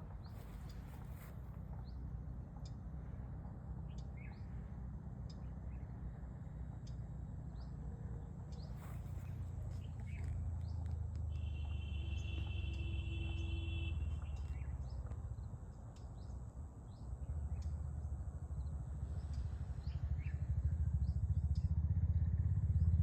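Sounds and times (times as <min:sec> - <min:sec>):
birds chirping: 0:03.8 - 0:21.8.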